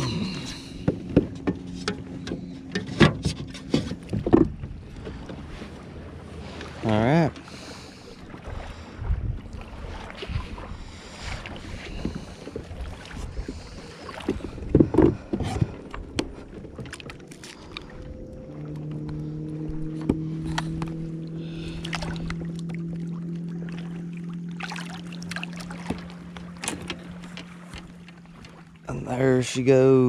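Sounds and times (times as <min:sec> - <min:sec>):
knocks and clatter on a boat: 0:00.0 - 0:07.7, 0:08.3 - 0:29.4
low motor hum: 0:00.0 - 0:30.0.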